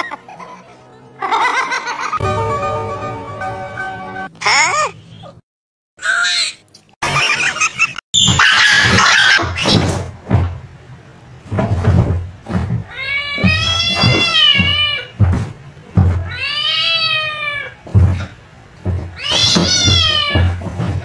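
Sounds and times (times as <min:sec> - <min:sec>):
cat meowing: 0:12.9 - 0:15.1, 0:16.3 - 0:17.8, 0:19.2 - 0:20.6.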